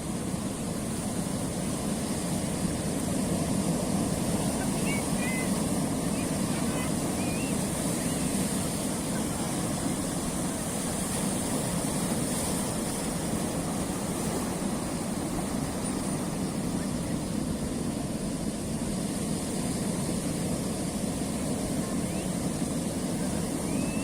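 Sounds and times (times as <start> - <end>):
sea surf on rocky shore: 0.0 - 24.0.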